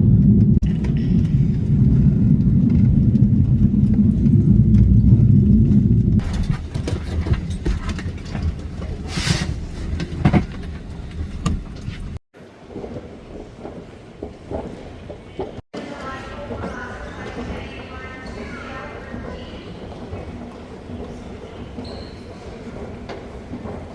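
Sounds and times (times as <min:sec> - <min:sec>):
jet cabin rumble: 0:00.0 - 0:12.2
scattered clicks and knocks: 0:00.2 - 0:23.9.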